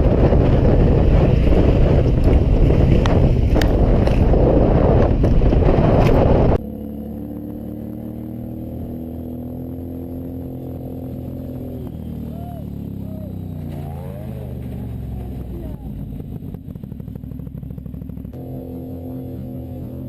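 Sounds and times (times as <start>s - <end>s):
wind rushing on microphone: 0.0s - 6.6s
motorcycle engine humming: 0.0s - 20.0s.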